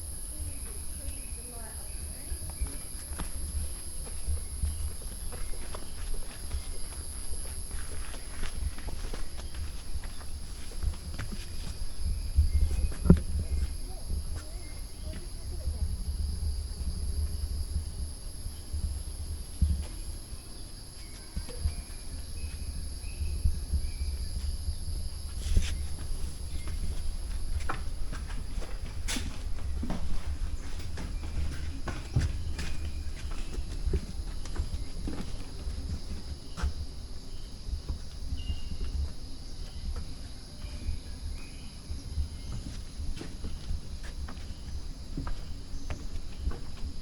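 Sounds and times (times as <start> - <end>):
jungle insects droning: 0.0 - 47.0
footsteps: 0.4 - 15.8, 24.4 - 36.9, 42.2 - 47.0.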